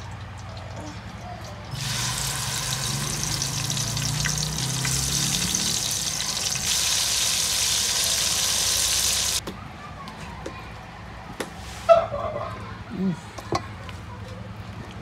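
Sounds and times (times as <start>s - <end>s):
paste sizzling in hot oil: 1.7s - 9.4s.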